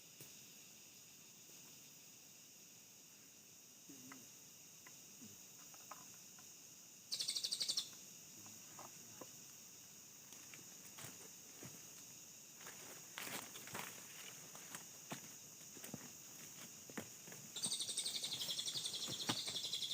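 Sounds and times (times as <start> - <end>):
insects buzzing: 0.0 - 19.9.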